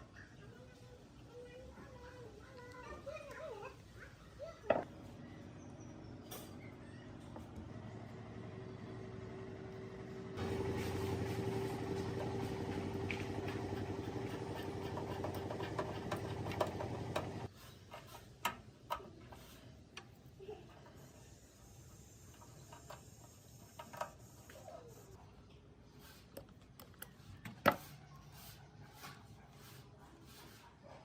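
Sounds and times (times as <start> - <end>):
small motor humming: 7.5 - 17.5.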